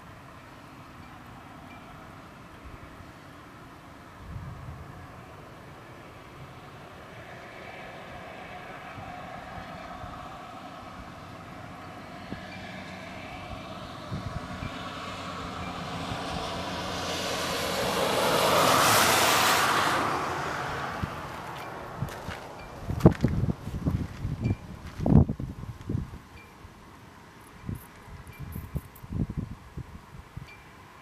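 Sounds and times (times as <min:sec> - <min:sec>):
vehicle passing by: 0:04.5 - 0:25.2.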